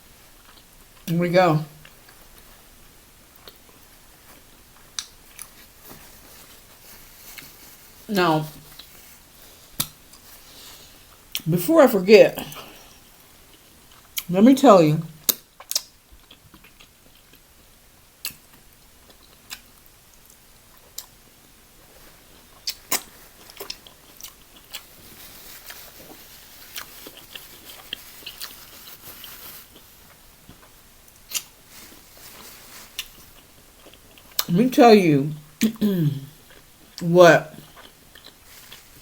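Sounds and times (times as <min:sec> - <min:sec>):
faint hiss: 0:00.0 - 0:11.4
person chewing and biting: 0:15.2 - 0:17.4, 0:18.2 - 0:21.2, 0:22.4 - 0:31.5, 0:32.9 - 0:34.5, 0:37.6 - 0:39.0.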